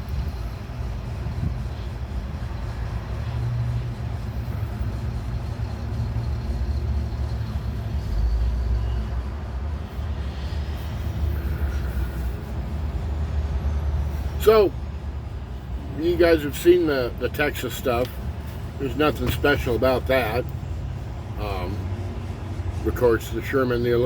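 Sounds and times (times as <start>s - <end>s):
diesel truck engine rumbling: 0.0s - 24.0s
truck cab noise: 0.0s - 24.0s.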